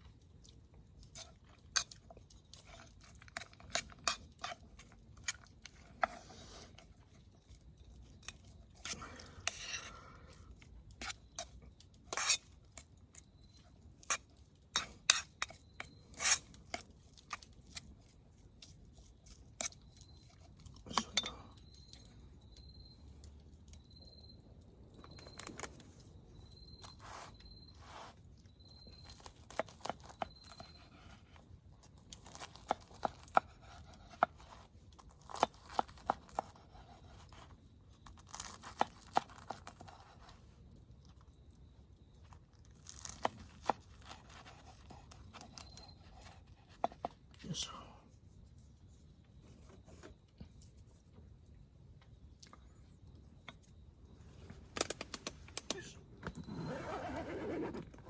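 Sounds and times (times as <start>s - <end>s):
camp tableware clicking and scraping: 1.0s - 13.3s, 13.9s - 22.1s, 54.4s - 58.0s.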